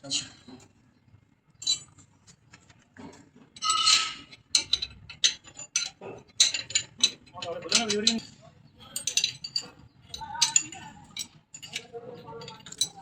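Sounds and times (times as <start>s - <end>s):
metal tools clinking on pipes: 1.6s - 2.0s, 3.6s - 13.0s
ringing metal scrape: 3.6s - 4.9s.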